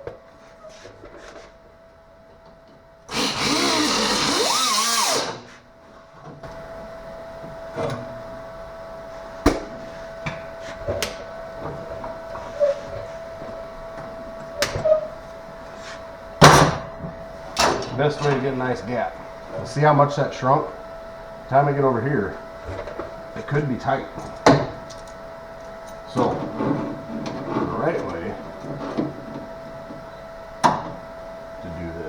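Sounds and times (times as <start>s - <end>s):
steady background hum: 0.0s - 32.0s
power tool whining on sheet metal: 3.0s - 5.7s.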